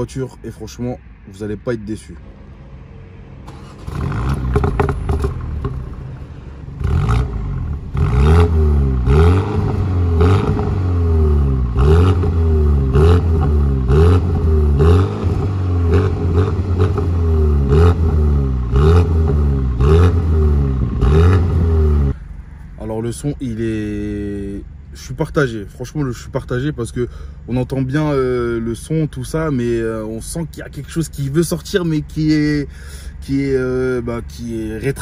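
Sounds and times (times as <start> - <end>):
car engine revving: 2.7 - 22.4.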